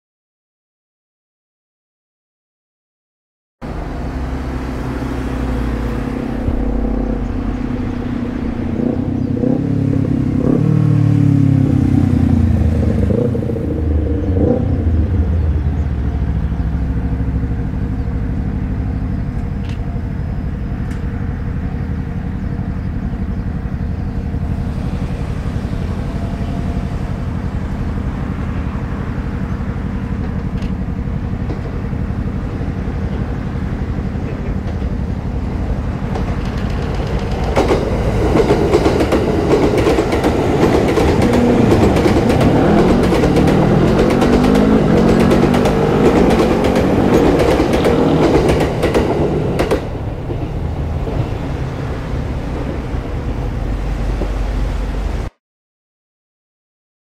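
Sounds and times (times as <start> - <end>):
train rumble: 3.6 - 55.3
electric whine gliding in pitch: 3.7 - 10.7
wheels clattering over rails: 3.7 - 54.6.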